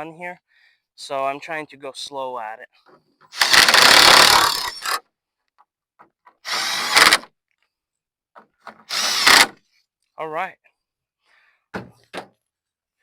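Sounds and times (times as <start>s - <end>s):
impact tool driving bolts: 3.3s - 5.0s, 6.3s - 7.3s, 8.7s - 9.6s.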